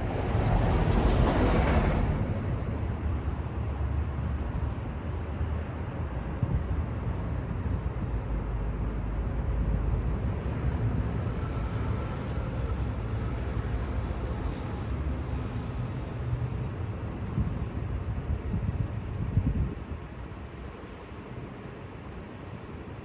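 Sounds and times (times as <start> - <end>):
passing cars: 0.0 - 7.2
road noise: 0.0 - 23.0.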